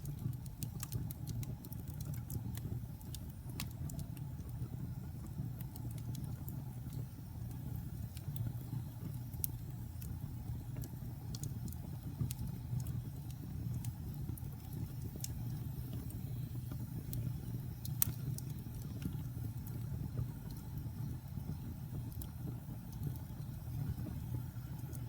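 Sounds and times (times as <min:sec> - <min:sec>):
sharp pops and snaps: 0:00.0 - 0:04.6, 0:05.5 - 0:20.9
wood fire crackling: 0:00.0 - 0:25.0.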